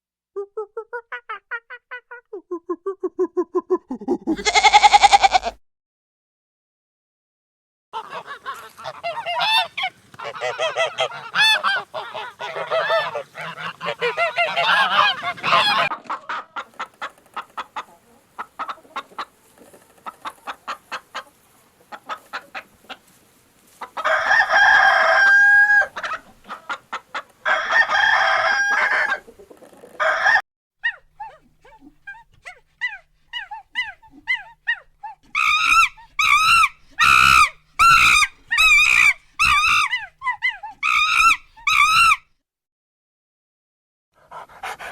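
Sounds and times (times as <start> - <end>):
geese honking: 8.0 - 16.4, 33.4 - 42.2
chickens clucking: 8.0 - 42.2, 44.3 - 44.9
rooster crowing: 24.0 - 26.0, 27.4 - 29.3, 30.0 - 30.4.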